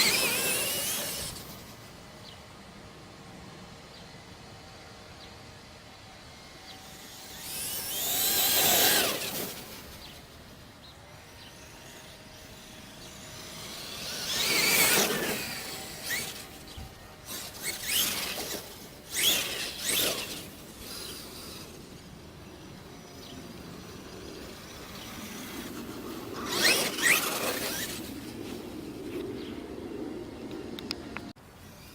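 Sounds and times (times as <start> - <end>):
rc truck throttle bursts: 0.0 - 1.8, 6.8 - 28.2
rc truck motor whine passing: 0.0 - 31.9.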